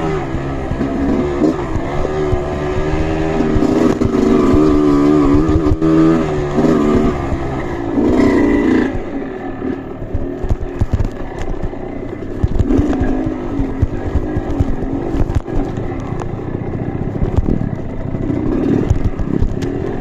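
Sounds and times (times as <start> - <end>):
motorcycle engine revving: 0.0 - 20.0
low thumps and knocks: 10.0 - 16.4, 17.1 - 20.0.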